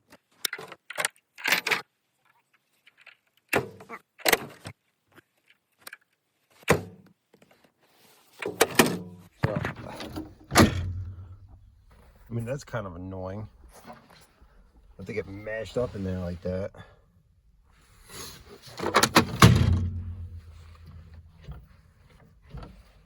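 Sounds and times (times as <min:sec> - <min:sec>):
metal tailgate clanking and rattling: 0:09.7 - 0:11.7, 0:18.8 - 0:21.6.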